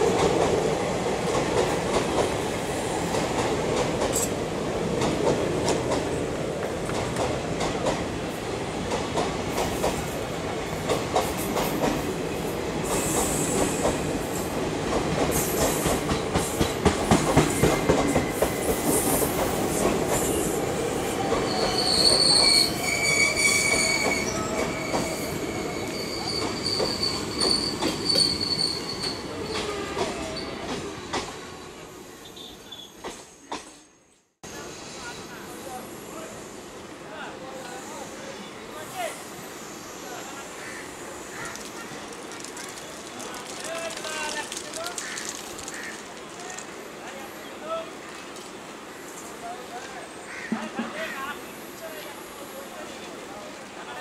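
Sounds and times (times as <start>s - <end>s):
train wheels rumbling and clattering: 0.0s - 31.4s, 41.3s - 46.8s
high-pitched wheel squeal: 21.5s - 29.2s.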